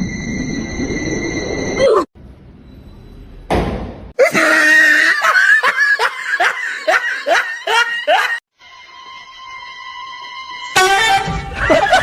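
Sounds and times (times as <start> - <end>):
person laughing hard: 4.2 - 8.4, 11.6 - 12.0.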